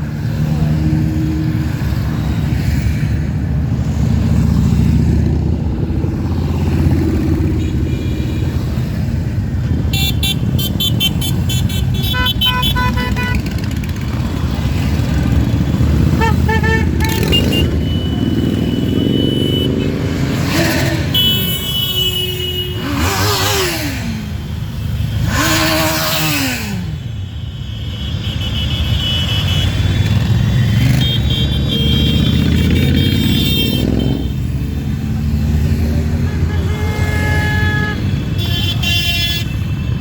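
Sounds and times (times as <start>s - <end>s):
motorcycles riding past revving: 0.0s - 10.6s, 11.4s - 21.7s, 22.7s - 24.4s, 29.4s - 38.4s
horns honking: 6.8s - 34.8s, 35.6s - 40.0s.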